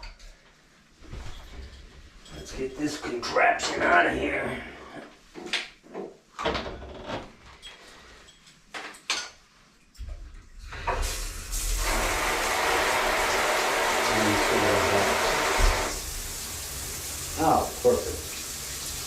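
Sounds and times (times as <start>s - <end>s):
water running through shower head: 11.0s - 19.0s.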